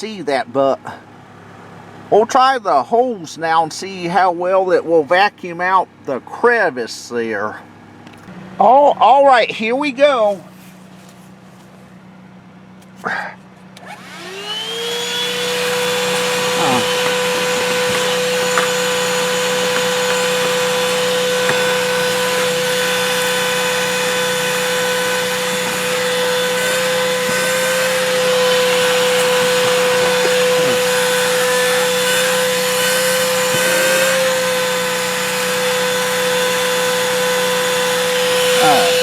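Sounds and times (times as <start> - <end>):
handheld vacuum motor whine: 13.8 - 39.0.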